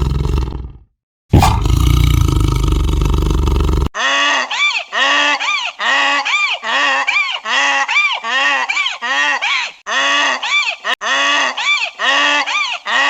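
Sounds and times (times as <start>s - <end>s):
loud low roar: 1.3s - 3.9s.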